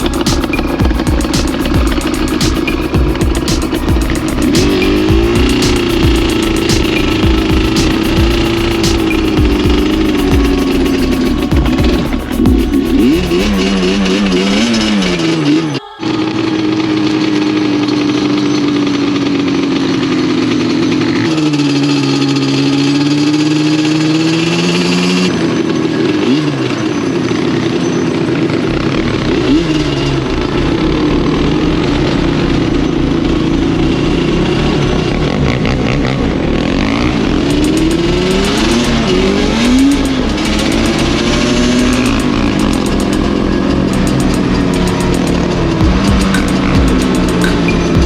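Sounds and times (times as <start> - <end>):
quad engines revving: 0.0 - 48.0.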